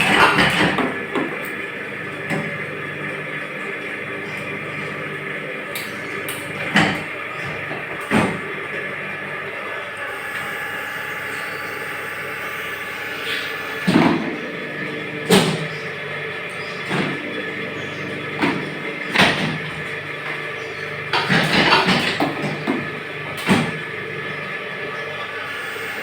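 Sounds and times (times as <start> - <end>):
moulding machine humming: 0.0 - 26.0
machine rattling: 13.2 - 24.4.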